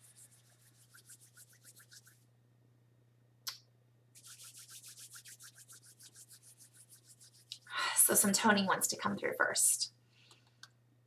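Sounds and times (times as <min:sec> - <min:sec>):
quick rhythmic rubbing: 0:00.0 - 0:02.2, 0:04.2 - 0:07.7.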